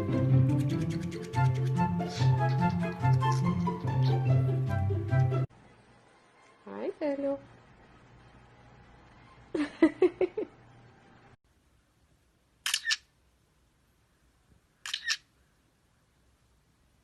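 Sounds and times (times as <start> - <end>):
sharp double clicks: 12.6 - 13.0.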